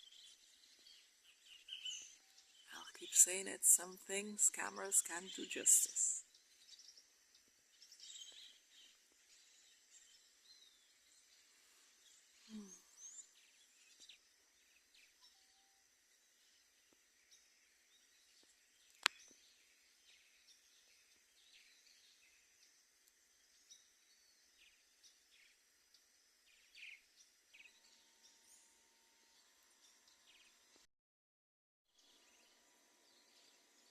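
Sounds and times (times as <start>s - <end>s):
birds chirping: 0.0s - 7.0s.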